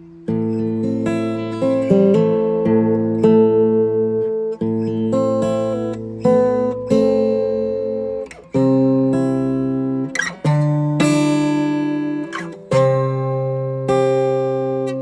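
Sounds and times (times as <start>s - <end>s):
acoustic guitar strummed chords: 0.0s - 15.0s.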